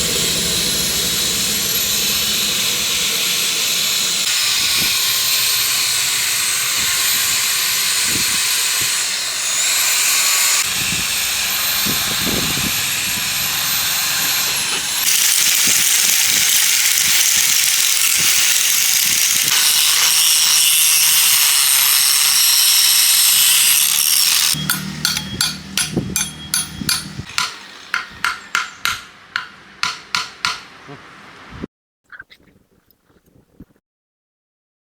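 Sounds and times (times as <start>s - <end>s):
power tool hissing on metal: 0.0s - 25.2s
sharp hammer-like taps: 24.7s - 30.7s.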